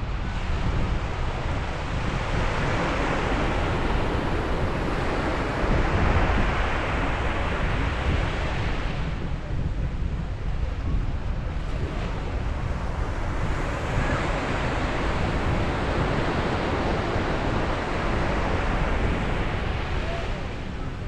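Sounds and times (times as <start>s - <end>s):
wind rumbling on microphone: 0.0s - 21.0s
sea waves breaking on beach: 11.5s - 21.0s.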